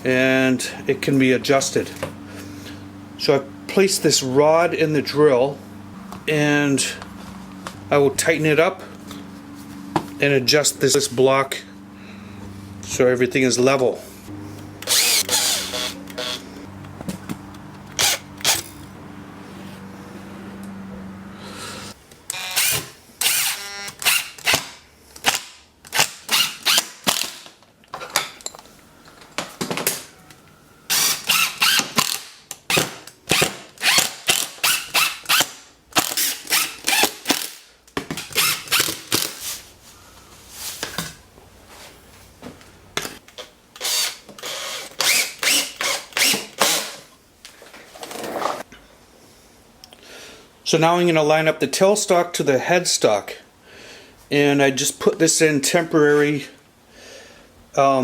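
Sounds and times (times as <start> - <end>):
hand tool sharp clicks: 17.8 - 18.9.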